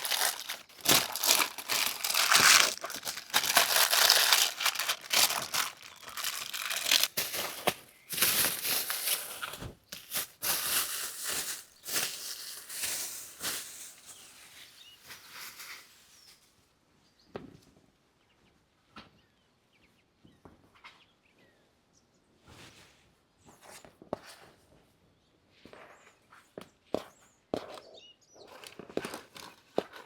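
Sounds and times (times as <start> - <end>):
rustling and crinkling: 0.0 - 16.5, 27.6 - 30.0.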